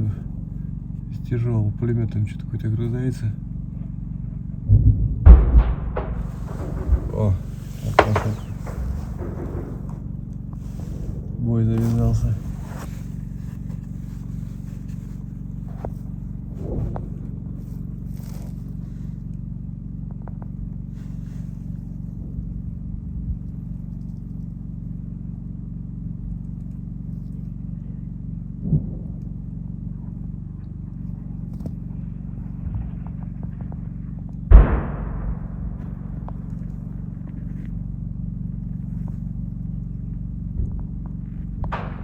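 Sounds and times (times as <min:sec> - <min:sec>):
low rumble: 0:00.0 - 0:42.0
distant gunfire bangs: 0:04.6 - 0:12.6, 0:34.5 - 0:36.9, 0:41.6 - 0:42.0.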